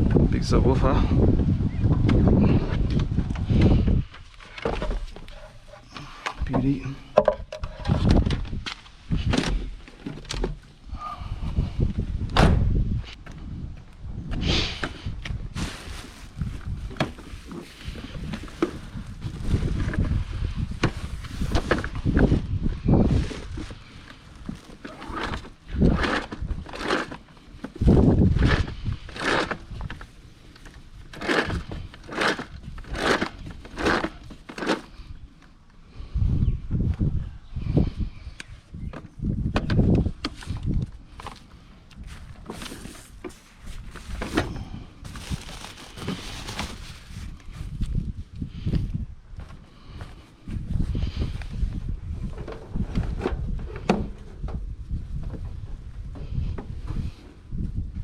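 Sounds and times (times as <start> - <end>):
hard items knocking and thudding: 6.3 - 8.6
low thump: 12.3 - 12.8.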